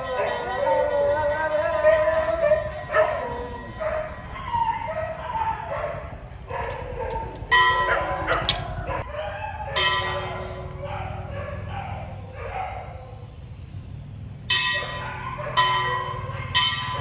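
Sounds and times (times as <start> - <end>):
dogs barking: 0.0 - 13.3, 14.5 - 17.0
dogs whining and howling: 0.0 - 13.3, 14.8 - 17.0.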